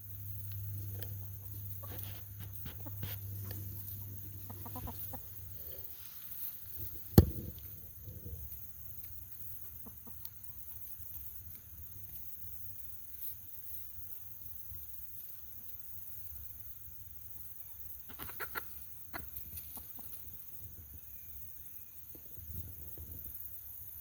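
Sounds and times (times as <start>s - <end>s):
hens clucking: 1.0s - 6.0s, 9.6s - 10.7s, 18.1s - 20.4s.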